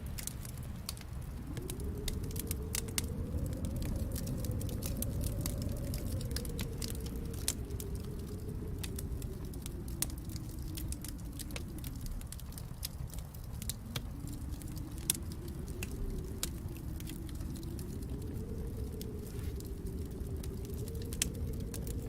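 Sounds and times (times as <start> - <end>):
low steady rumble: 0.0 - 22.0
wood fire crackling and popping: 0.0 - 22.0.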